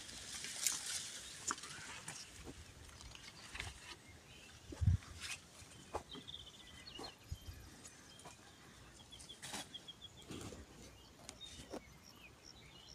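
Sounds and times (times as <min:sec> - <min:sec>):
faint bird chirps: 0:03.0 - 0:12.9.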